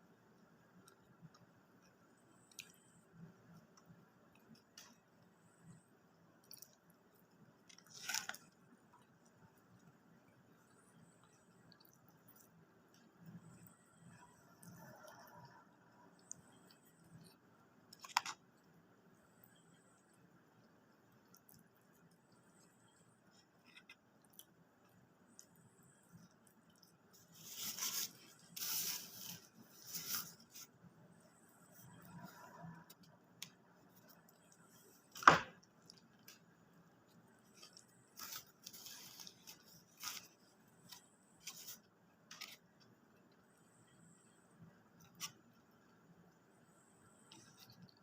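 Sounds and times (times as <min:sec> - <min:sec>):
biting and crunching food: 0:06.3 - 0:10.0
rustling: 0:26.1 - 0:30.8, 0:35.8 - 0:42.6.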